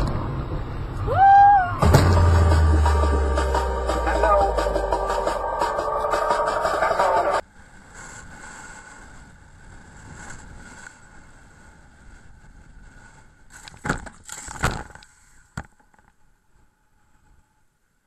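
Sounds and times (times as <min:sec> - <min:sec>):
sharp knocks: 0:01.8 - 0:03.9
moving vehicle running: 0:01.8 - 0:07.4.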